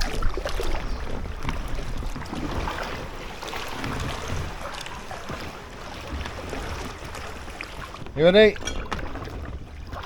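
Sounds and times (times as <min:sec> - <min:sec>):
wind on microphone: 0:00.0 - 0:05.2
water splashing off paddle: 0:00.0 - 0:10.0.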